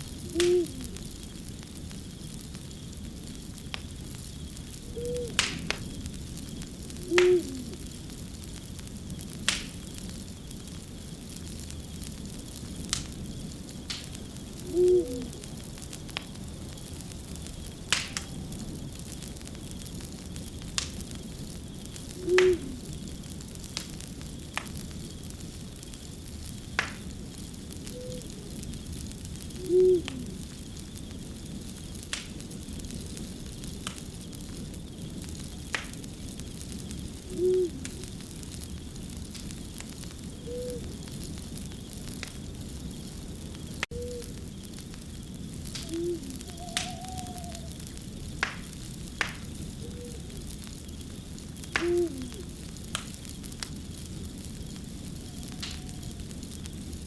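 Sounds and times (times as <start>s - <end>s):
wood fire crackling and popping: 0.0s - 57.0s
fainter higher calls: 45.8s - 47.8s, 51.8s - 52.5s, 55.1s - 56.3s.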